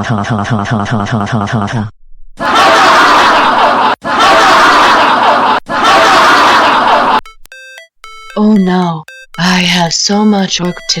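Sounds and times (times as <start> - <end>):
laughter sound effect: 2.4 - 7.2.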